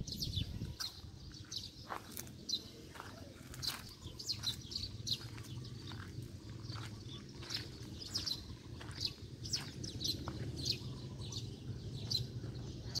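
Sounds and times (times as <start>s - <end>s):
small birds chirping: 0.0s - 13.0s
steady low background rumble: 3.4s - 13.0s.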